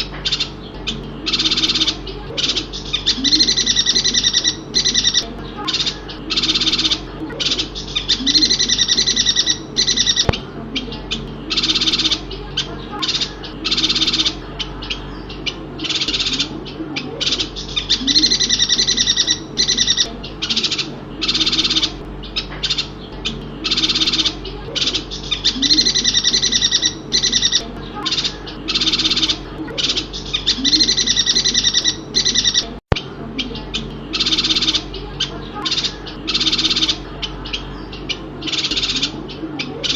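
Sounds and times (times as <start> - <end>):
bird chattering high calls: 0.0 - 39.9.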